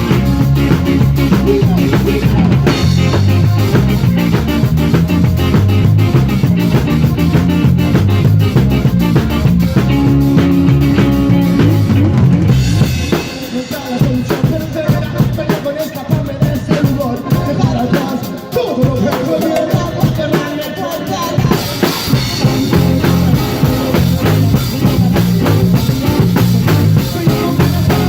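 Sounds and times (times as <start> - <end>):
dense bass line: 0.0 - 13.2, 22.1 - 28.0
band playing live: 0.0 - 28.0
drum kit: 0.0 - 28.0.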